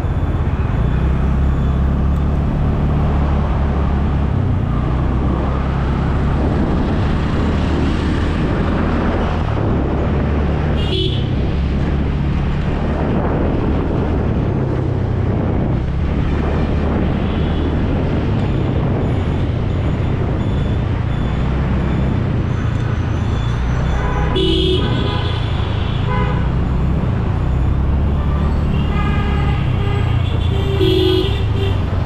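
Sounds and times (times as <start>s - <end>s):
road traffic rumble: 0.0s - 32.0s
vehicle horns tooting: 10.8s - 11.3s, 23.8s - 26.5s, 28.2s - 31.9s.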